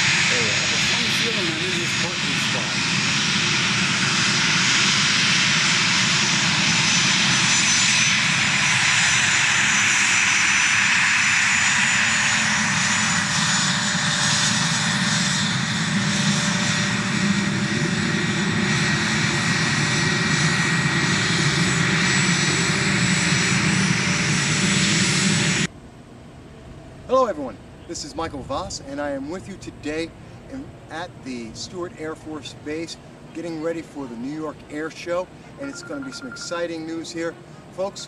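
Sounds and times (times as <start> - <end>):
jet engines running: 0.0 - 38.0.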